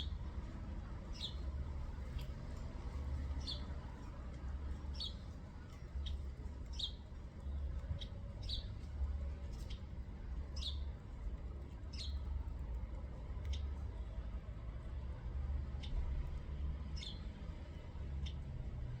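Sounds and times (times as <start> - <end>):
low steady rumble: 0.0 - 19.0
small bird chirping: 1.1 - 2.4, 3.2 - 3.8, 4.9 - 5.3, 6.0 - 7.1, 8.0 - 8.8, 10.6 - 10.9, 11.9 - 12.2, 17.0 - 17.3.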